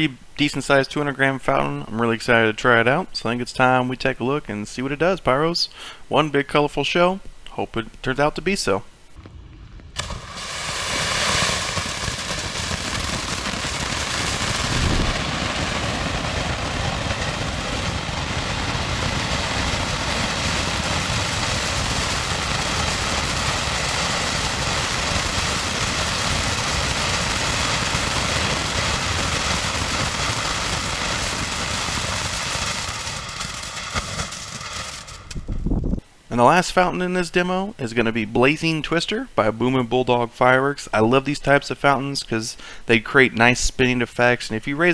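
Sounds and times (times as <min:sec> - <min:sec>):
fountain firework hissing: 0:09.9 - 0:35.4.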